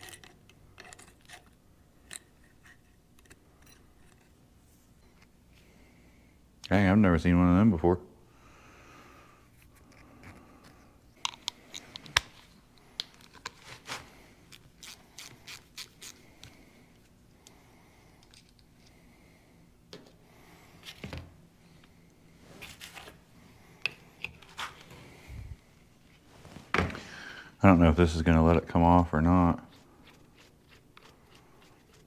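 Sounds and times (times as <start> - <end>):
metal tools clicking and scraping: 0.0 - 4.4.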